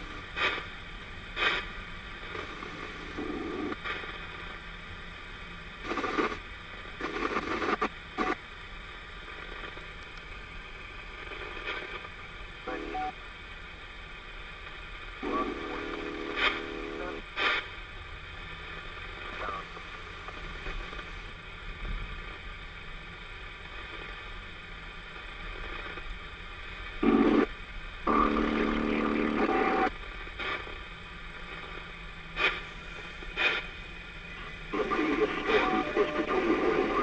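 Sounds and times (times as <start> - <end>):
garbled radio transmission: 0.0 - 4.5, 5.8 - 6.4, 7.0 - 8.4, 11.1 - 13.2, 15.2 - 17.8, 19.0 - 21.2, 27.0 - 30.8, 31.4 - 37.0
radio static hiss: 0.0 - 37.0
static crackles: 0.0 - 37.0.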